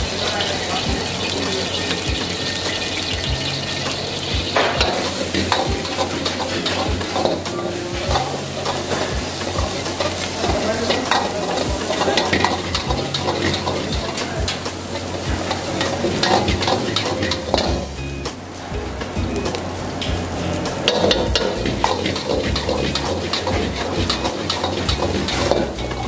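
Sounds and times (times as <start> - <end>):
food sizzling in a pan: 0.0 - 26.0
utensil scraping a pan: 20.7 - 26.0.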